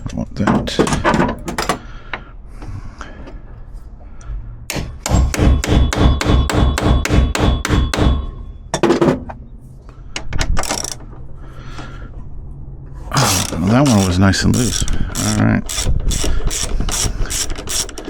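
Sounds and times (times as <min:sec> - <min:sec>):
hammer clanging on metal: 0:04.7 - 0:09.3.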